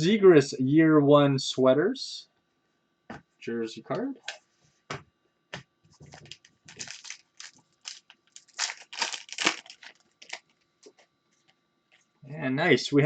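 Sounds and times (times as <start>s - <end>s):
cards being handled: 5.9s - 11.5s
foil wrapper crinkling: 6.1s - 11.5s.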